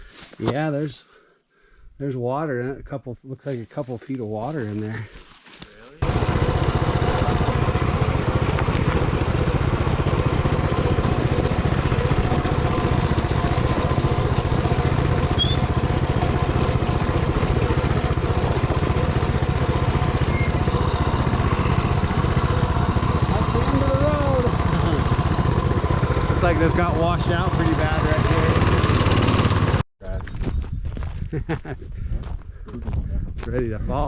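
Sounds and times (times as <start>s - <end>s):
single-cylinder engine running steadily: 6.0s - 29.8s.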